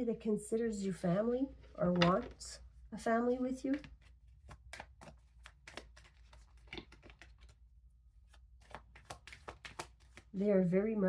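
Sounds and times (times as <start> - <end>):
cards clicking and tapping: 3.5 - 7.6, 8.3 - 10.3.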